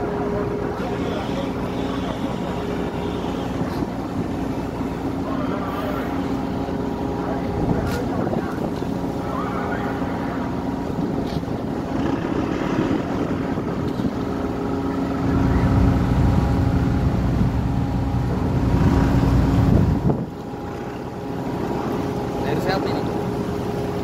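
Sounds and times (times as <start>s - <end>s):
ship engine humming: 0.0s - 24.0s
wind buffeting microphone: 2.8s - 24.0s.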